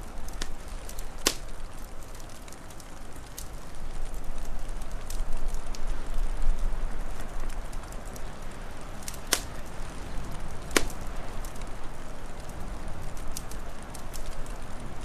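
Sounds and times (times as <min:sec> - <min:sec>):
wood fire crackling: 0:00.0 - 0:15.0
loud sharp pops: 0:09.2 - 0:09.6, 0:10.7 - 0:11.0.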